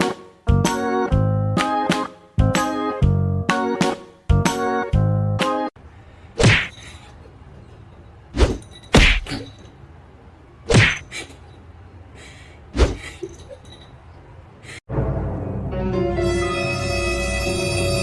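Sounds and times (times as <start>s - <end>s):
music with sustained tones: 14.9s - 18.0s.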